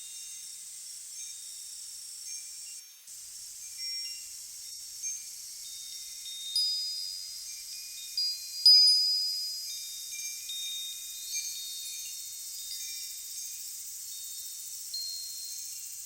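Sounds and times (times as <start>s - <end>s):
faint steady hiss: 0.0s - 16.0s
wind chimes ringing: 5.0s - 16.0s.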